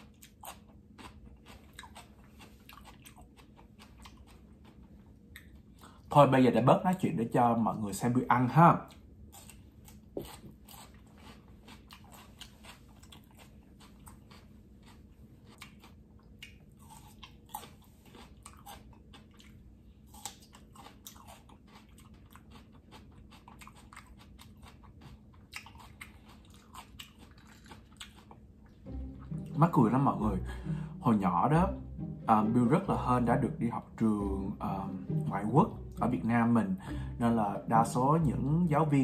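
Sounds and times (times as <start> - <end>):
crisp chewing crunches: 0.0 - 6.0, 8.9 - 28.7.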